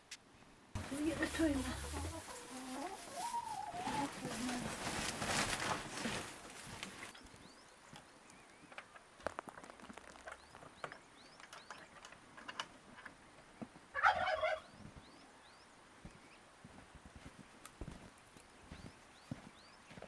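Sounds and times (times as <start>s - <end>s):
turkey gobbling: 0.8s - 4.4s, 13.9s - 14.7s.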